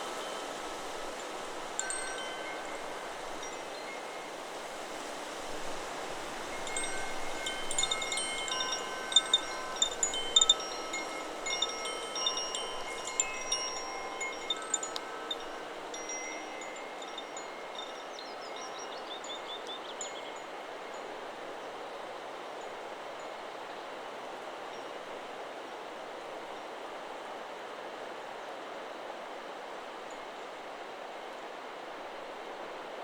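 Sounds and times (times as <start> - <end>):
wind chime ringing: 0.0 - 20.3
wind in the trees: 0.0 - 33.0.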